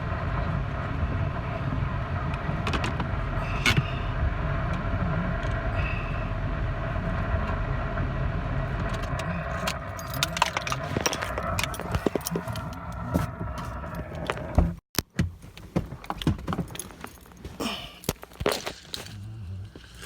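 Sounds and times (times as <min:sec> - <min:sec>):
car cabin road noise: 0:00.0 - 0:20.0
clicks and rattles: 0:08.8 - 0:17.3.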